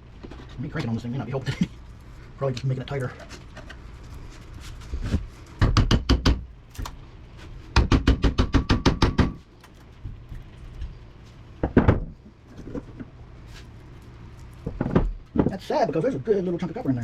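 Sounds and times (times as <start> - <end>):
metallic knocks on motor housing: 7.8 - 9.4.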